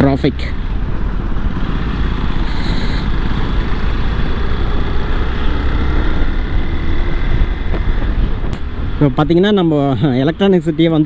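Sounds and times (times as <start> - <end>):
motorcycle engine and road noise: 0.0 - 11.0
wind rumble on microphone: 2.2 - 9.5.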